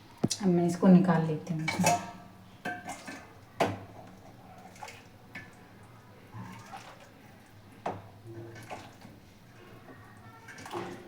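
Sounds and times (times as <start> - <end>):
ladle clinking against pot: 1.6 - 3.9.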